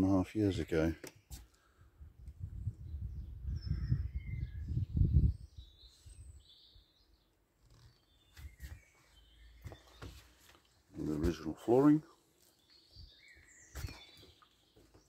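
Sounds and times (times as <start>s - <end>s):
birds chirping: 0.0s - 1.8s, 2.6s - 15.0s.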